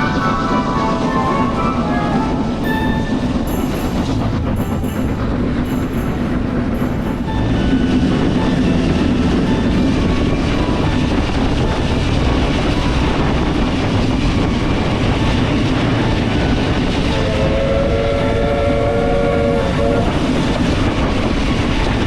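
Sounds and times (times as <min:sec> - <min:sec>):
locomotive whistle: 0:00.0 - 0:22.0
steam train rumbling on track: 0:00.0 - 0:22.0.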